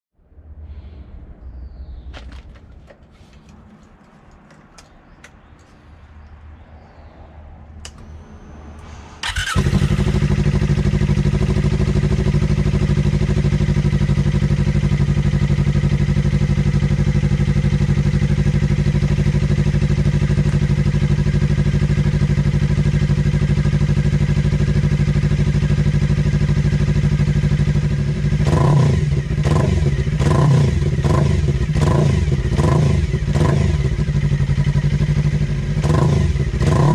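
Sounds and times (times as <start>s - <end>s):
motorcycle engine idling: 9.2s - 36.9s
motorcycle throttle blips: 9.2s - 36.9s.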